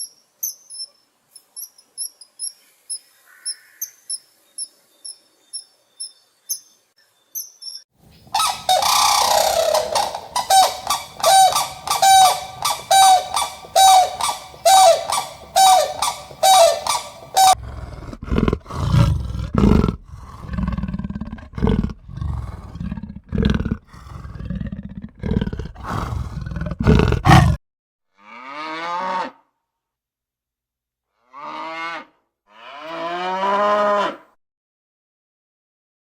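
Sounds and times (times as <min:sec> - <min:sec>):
honking bird calls: 0:08.3 - 0:17.6
big cat roaring grunts: 0:17.6 - 0:27.6
cow mooing: 0:25.2 - 0:27.6.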